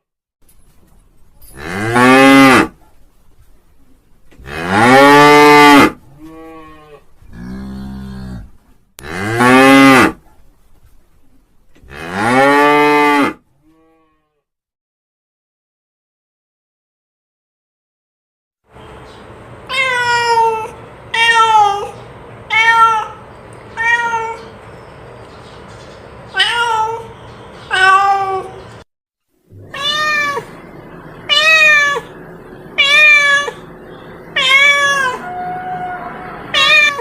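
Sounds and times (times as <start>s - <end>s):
animal high pitched cries: 29.6s - 32.2s, 32.8s - 33.7s, 34.3s - 37.0s.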